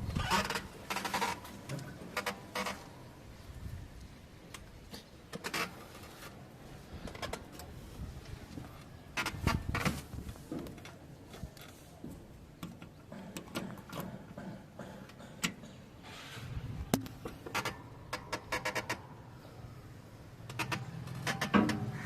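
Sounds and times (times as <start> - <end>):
metal clanks and knocks: 12.8 - 16.0, 20.5 - 22.0
rattling clicks: 20.4 - 21.9.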